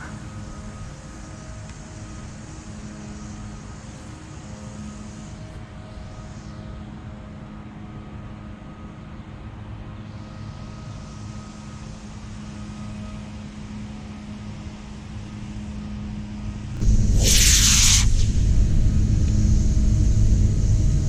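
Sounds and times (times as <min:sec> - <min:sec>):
low hum and rumble: 0:16.3 - 0:21.0
rocket motor igniting hiss: 0:16.8 - 0:21.0.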